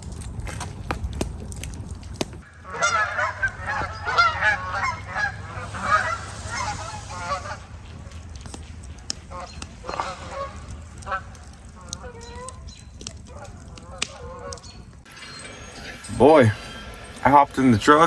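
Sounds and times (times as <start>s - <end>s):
low rumble: 0.0s - 11.9s
geese honking: 2.4s - 18.0s.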